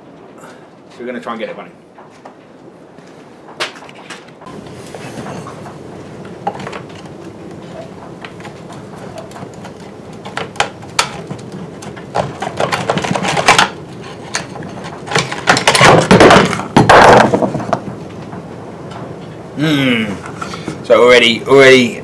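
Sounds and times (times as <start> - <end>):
metal and plastic rattling: 6.4 - 17.9.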